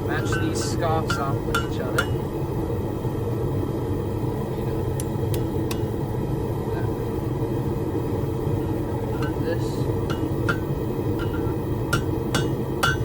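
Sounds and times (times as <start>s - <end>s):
gas forge burners roaring: 0.0s - 13.0s.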